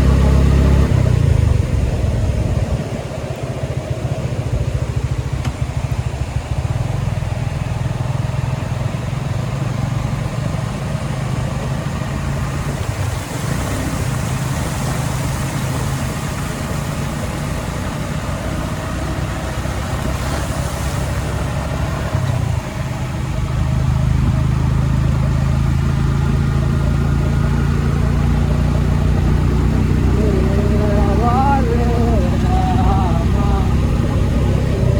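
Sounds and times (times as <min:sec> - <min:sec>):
vehicle engine running: 0:00.0 - 0:34.9
faint rushing hiss: 0:11.3 - 0:25.4.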